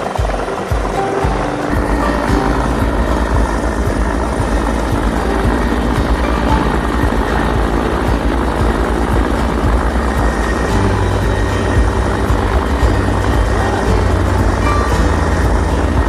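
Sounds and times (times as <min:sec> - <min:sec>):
helicopter rotor and engine: 0:02.4 - 0:14.3.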